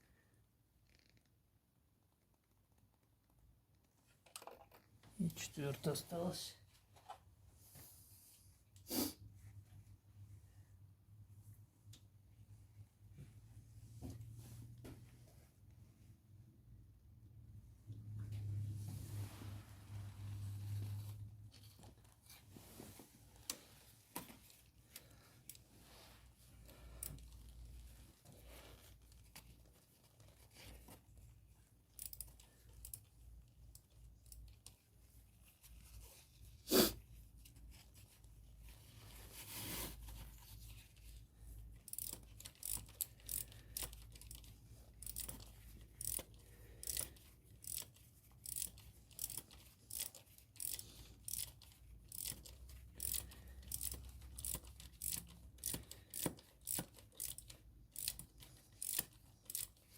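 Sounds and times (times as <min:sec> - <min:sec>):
ratchet wrench clicking: 0:32.0 - 0:33.0, 0:41.9 - 0:59.8.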